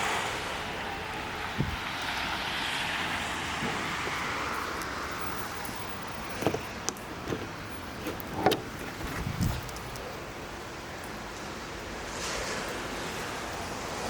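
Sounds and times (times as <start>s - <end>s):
wind on microphone: 1.5s - 1.9s, 7.3s - 10.2s
short knocks and clicks: 6.4s - 9.8s.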